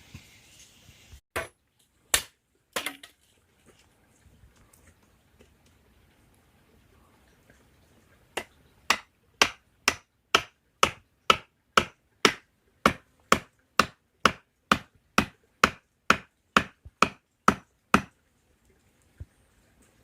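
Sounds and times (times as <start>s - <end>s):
sharp chopping strikes: 8.9s - 18.1s.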